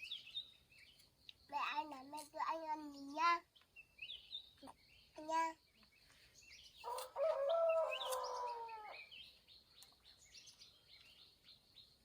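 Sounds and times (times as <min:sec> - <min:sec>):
small birds chirping: 0:00.0 - 0:12.0
rooster crowing: 0:06.8 - 0:09.0.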